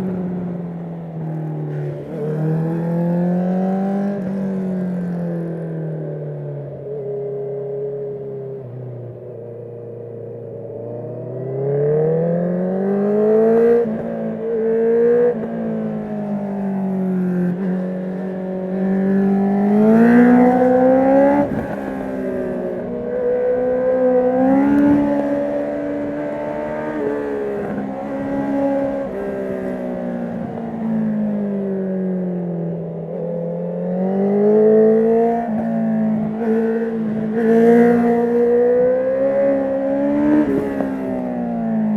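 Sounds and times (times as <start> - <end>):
motorcycle engine revving: 18.6 - 29.8.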